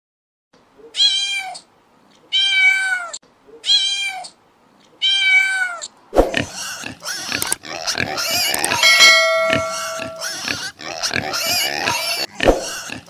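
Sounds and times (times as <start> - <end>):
cat meowing: 2.3 - 4.3, 5.0 - 5.8.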